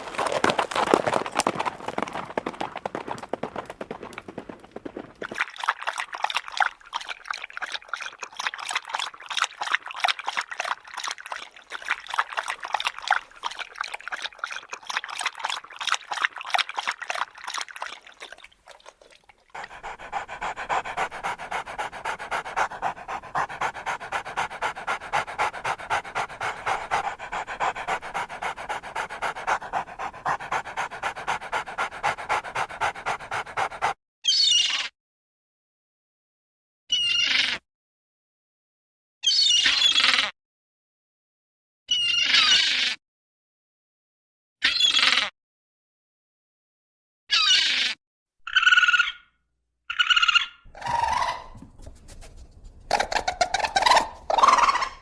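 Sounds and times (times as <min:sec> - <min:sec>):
dog panting: 0:05.6 - 0:34.0, 0:50.7 - 0:55.0.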